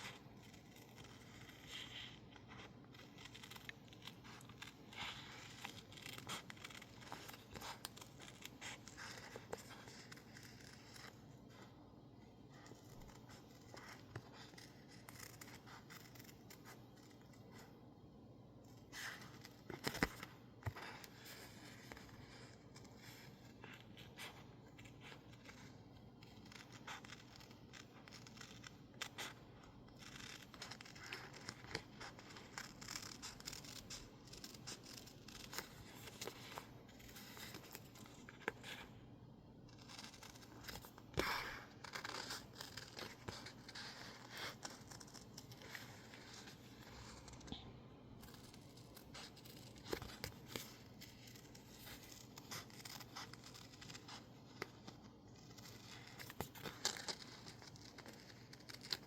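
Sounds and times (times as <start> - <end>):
paper rustling: 0.0 - 17.7, 18.7 - 39.0.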